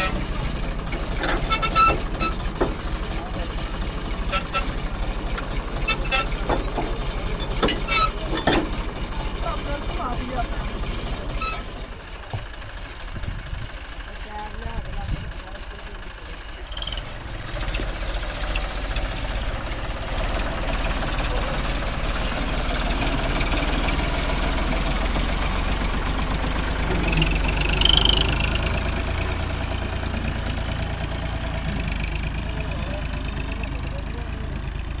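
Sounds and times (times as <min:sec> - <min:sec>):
engine running: 0:00.0 - 0:35.0
high squeal: 0:01.4 - 0:02.5, 0:27.0 - 0:28.8.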